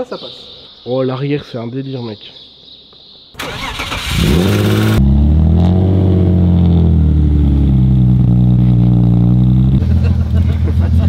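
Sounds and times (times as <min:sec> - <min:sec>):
car engine idling: 0:03.4 - 0:11.0
engine revving: 0:03.4 - 0:11.0.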